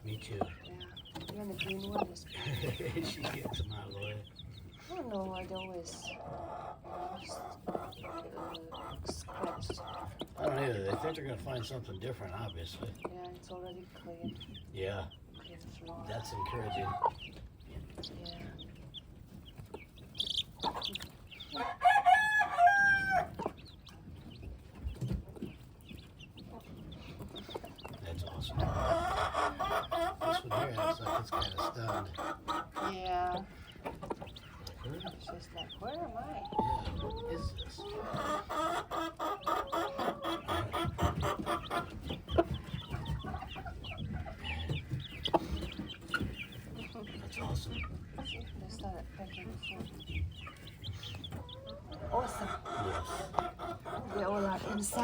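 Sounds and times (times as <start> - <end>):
chickens clucking: 0.0 - 55.0
high chirps and peeps: 0.0 - 55.0
rooster crowing: 21.6 - 23.4.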